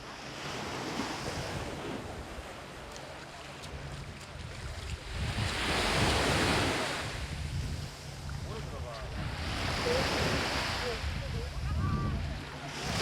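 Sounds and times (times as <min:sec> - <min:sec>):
surf washing on beach: 0:00.0 - 0:13.0
wind rumble on microphone: 0:03.6 - 0:13.0.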